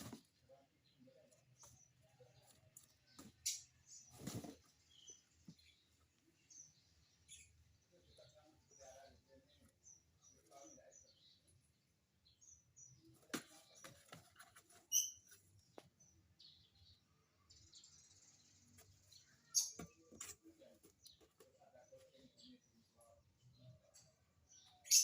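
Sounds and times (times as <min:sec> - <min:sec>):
lovebird chirping: 0:14.8 - 0:15.4, 0:23.7 - 0:25.0.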